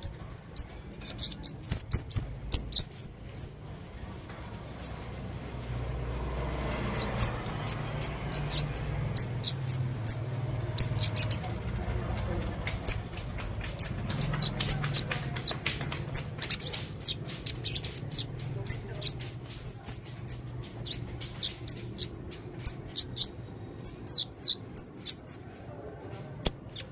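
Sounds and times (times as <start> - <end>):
parrot chirping: 0.0 - 25.5, 26.4 - 26.9.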